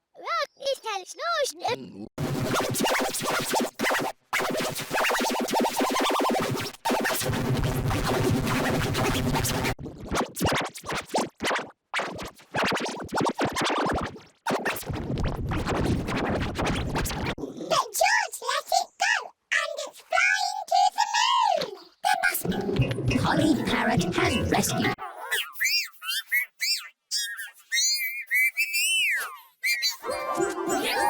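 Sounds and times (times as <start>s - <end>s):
distorted glitchy cartoon audio: 2.2s - 14.6s, 22.4s - 25.0s.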